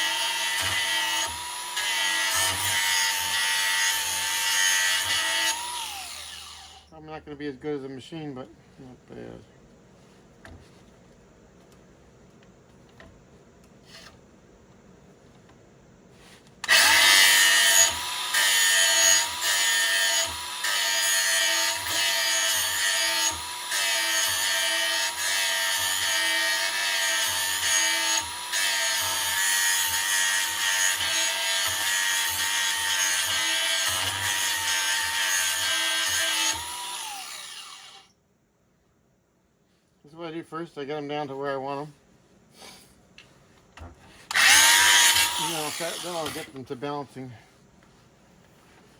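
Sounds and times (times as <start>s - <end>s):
power tool grinding metal: 0.0s - 6.9s, 16.6s - 38.1s, 44.3s - 46.6s.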